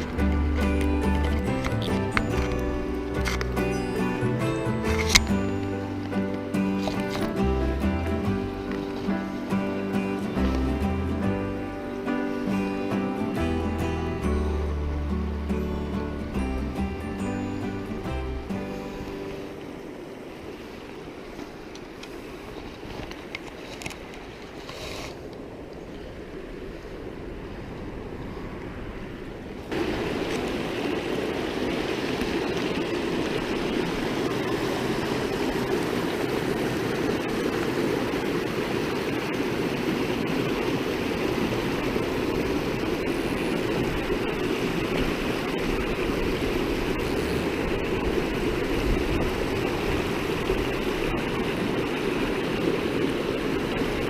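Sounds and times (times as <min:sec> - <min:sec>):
mountain creek rushing water: 0:00.0 - 0:54.0.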